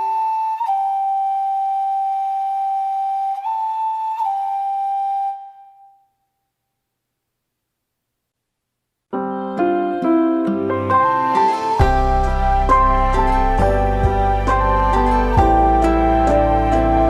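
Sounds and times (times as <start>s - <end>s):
slow flute-like melody: 0.0s - 6.2s, 9.9s - 17.0s.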